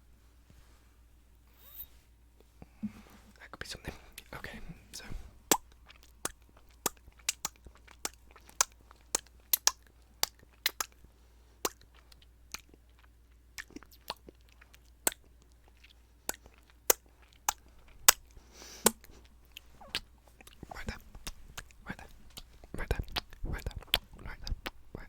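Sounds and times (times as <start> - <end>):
wet mouth clicks and pops: 5.5 - 11.0, 11.6 - 12.8, 13.6 - 14.4, 15.0 - 15.2, 16.3 - 24.8.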